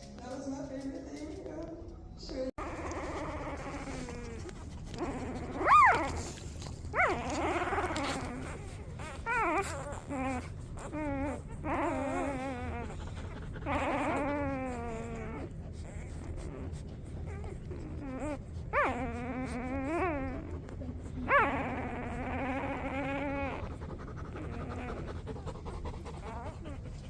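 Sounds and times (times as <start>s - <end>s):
puppies whimpering and crying: 2.4s - 27.0s.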